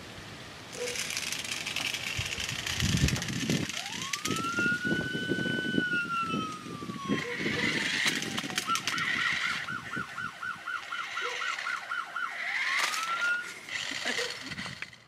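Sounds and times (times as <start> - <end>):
police siren wailing: 3.7 - 13.8
scattered clicks and knocks: 7.8 - 9.4.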